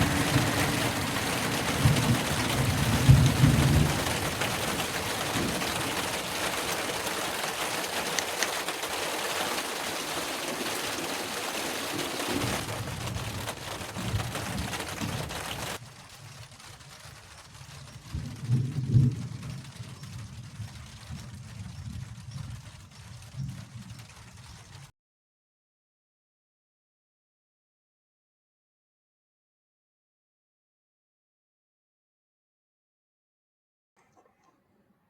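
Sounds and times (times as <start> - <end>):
heavy rain falling: 0.0 - 24.9
thunder rumbles: 0.0 - 24.9.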